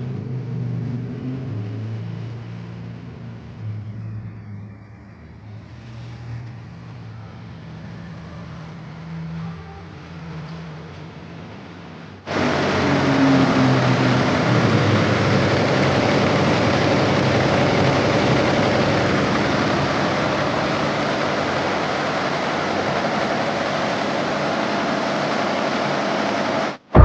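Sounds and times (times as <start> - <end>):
embroidery machine running: 12.3 - 27.0.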